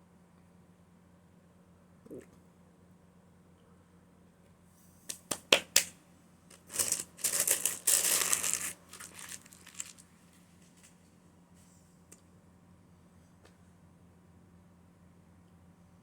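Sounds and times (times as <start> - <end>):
food wrapping crinkling: 6.5 - 10.1.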